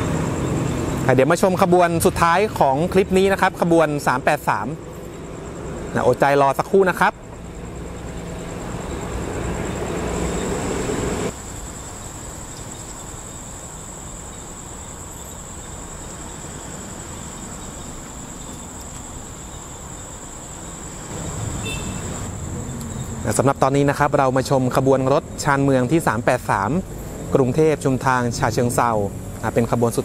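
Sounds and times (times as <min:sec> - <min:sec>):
insects chirring: 0:00.0 - 0:30.0
railcar engine drone: 0:06.8 - 0:24.2
train rumbling: 0:08.4 - 0:11.3.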